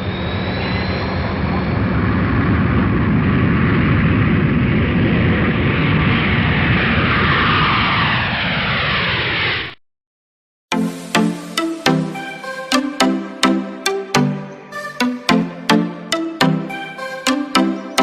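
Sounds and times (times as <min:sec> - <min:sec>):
aircraft engine passing: 0:00.0 - 0:09.7.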